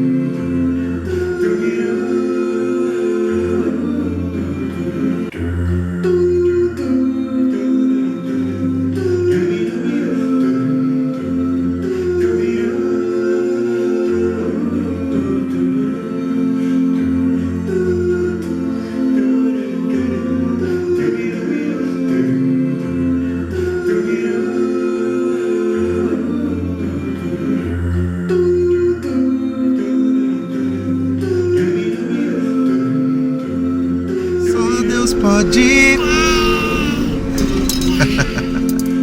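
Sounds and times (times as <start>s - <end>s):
a cappella group singing harmony: 0.0s - 39.0s
bass voice singing low notes: 34.2s - 39.0s.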